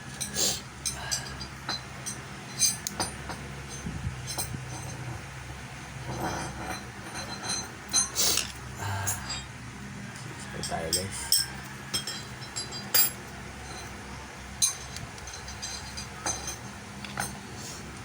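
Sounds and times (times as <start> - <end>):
steady low hum: 0.0 - 18.0
clicks and clinks of small tools: 14.6 - 17.4.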